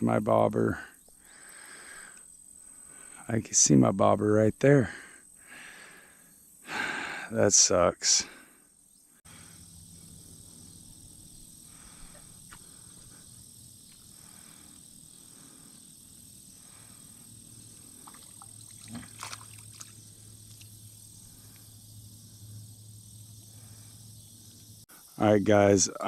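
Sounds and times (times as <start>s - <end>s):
insects and frogs chorus: 0.0s - 26.0s.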